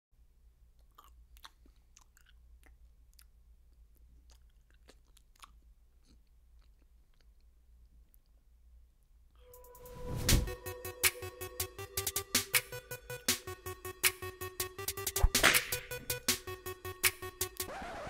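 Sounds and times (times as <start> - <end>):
chewing and mouth clicks: 0.7 - 8.4.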